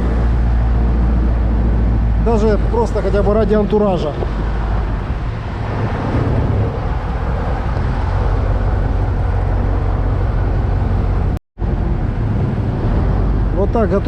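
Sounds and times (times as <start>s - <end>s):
water rushing: 0.0s - 11.4s
boat engine droning: 0.0s - 11.9s
wind: 0.0s - 14.0s.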